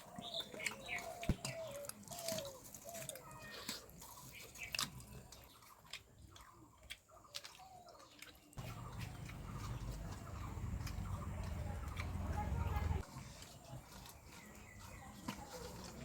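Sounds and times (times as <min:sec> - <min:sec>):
wet clicks and lip smacks of eating: 0:00.1 - 0:16.0
low steady rumble: 0:08.6 - 0:13.0.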